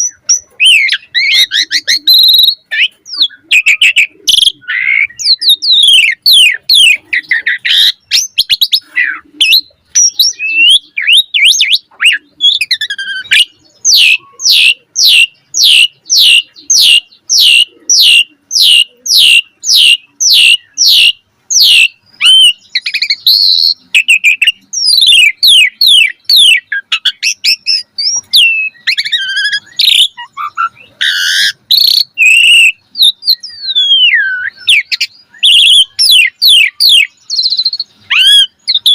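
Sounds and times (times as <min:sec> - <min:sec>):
starling singing whistles: 0:00.0 - 0:38.9.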